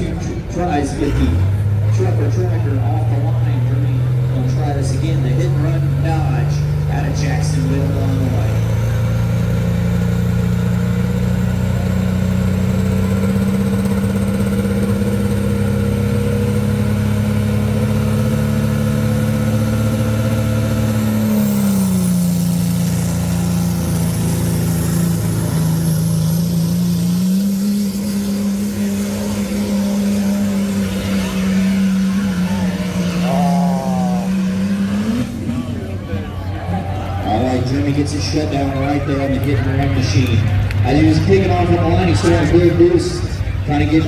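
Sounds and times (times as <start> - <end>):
truck engine at high revs: 0.0 - 44.0.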